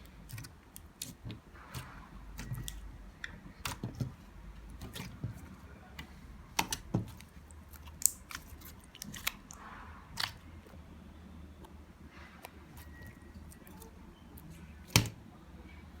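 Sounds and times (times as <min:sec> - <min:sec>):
slime popping and clicking: 0:06.6 - 0:09.6, 0:10.2 - 0:10.4.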